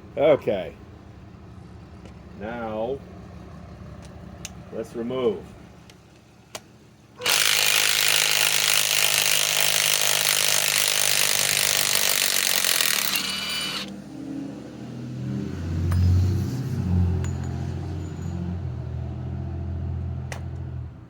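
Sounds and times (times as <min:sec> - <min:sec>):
impact wrench hammering: 0:07.2 - 0:13.9, 0:15.8 - 0:16.4, 0:17.2 - 0:18.4.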